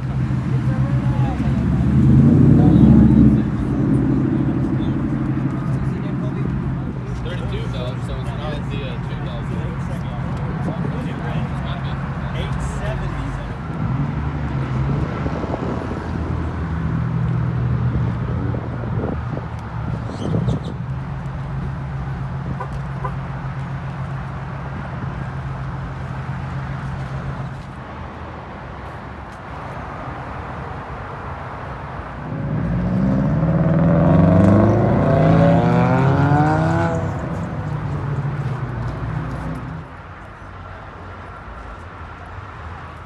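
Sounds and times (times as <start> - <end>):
car engine idling: 0.0 - 20.0, 32.1 - 40.0
car engine revving: 0.0 - 24.3, 32.1 - 40.0.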